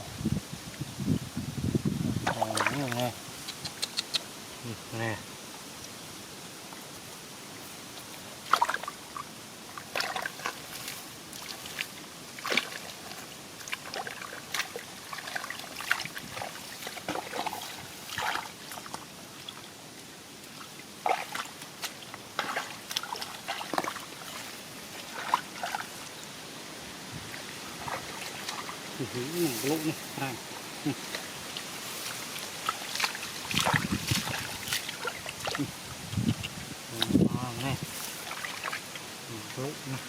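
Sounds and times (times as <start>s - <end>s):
shallow water splashing: 7.6s - 19.8s, 20.4s - 39.7s.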